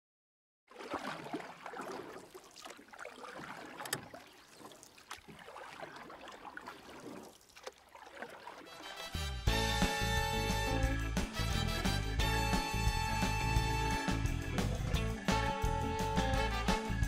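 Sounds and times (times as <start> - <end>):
water lapping against hull: 0.7 - 9.3.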